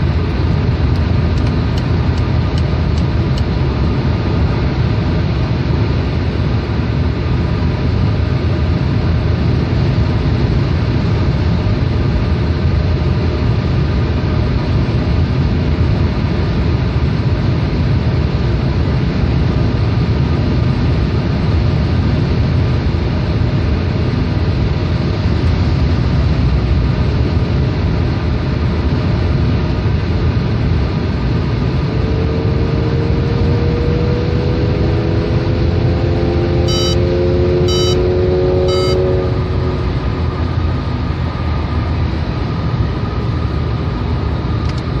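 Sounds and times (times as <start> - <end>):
car engine and road noise: 0.0 - 45.0
rising whine: 31.6 - 44.8.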